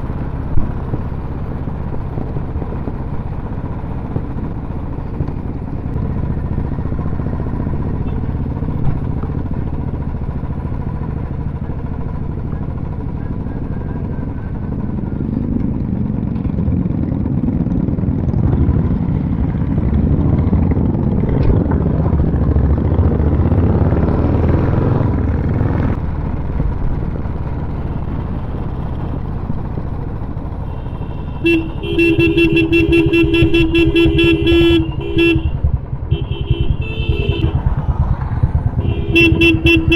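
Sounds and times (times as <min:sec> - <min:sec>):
motorcycles rumbling: 0:00.0 - 0:39.9
vehicle horn beeping: 0:30.6 - 0:37.7, 0:38.7 - 0:39.9.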